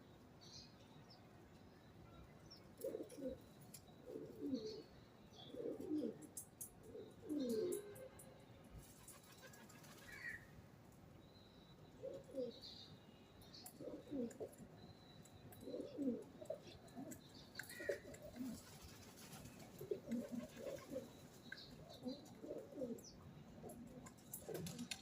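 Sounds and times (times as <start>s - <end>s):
small birds chirping: 0.0s - 7.9s, 8.8s - 25.0s
pigeons cooing: 2.8s - 3.4s, 4.0s - 8.0s, 12.0s - 12.6s, 13.7s - 14.6s, 15.6s - 25.0s.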